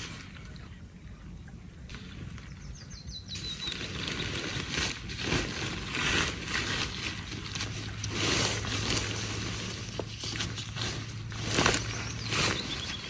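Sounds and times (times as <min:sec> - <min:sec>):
small bird calling: 0:02.4 - 0:04.8, 0:11.5 - 0:13.0
gear rustling and scraping: 0:03.3 - 0:13.0.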